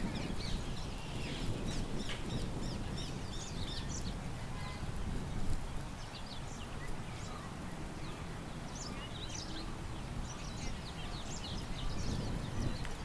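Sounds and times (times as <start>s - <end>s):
songbirds chirping: 5.8s - 13.0s
wind rumble: 11.5s - 13.0s.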